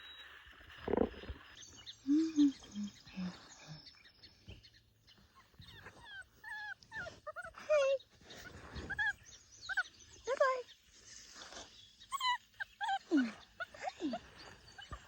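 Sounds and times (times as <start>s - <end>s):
rustle: 5.2s - 15.0s
puppy whimpering: 5.4s - 10.5s, 12.1s - 15.0s.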